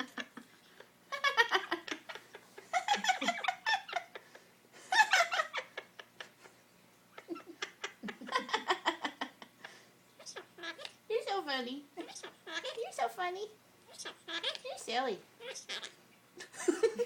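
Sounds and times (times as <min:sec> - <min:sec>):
talking bird chattering: 0:10.2 - 0:11.4, 0:12.0 - 0:13.2, 0:13.9 - 0:16.0
squeaky giggle-like bird notes: 0:12.0 - 0:13.1, 0:15.4 - 0:16.0.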